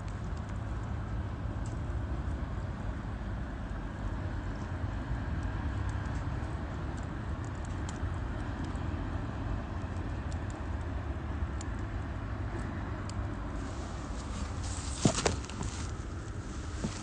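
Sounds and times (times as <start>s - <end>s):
low fire rumble: 0.0s - 17.0s
wood fire crackling: 0.0s - 17.0s.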